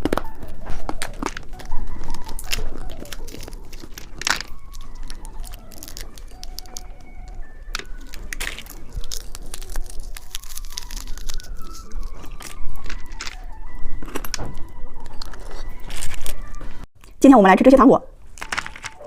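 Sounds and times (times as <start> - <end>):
candy being eaten: 0.0 - 14.2
candy packaging crackling: 0.0 - 16.9, 18.2 - 19.0.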